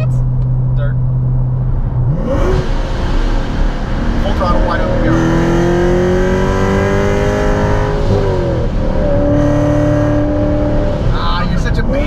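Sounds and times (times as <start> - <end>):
car engine revving through gears: 1.8 - 12.0.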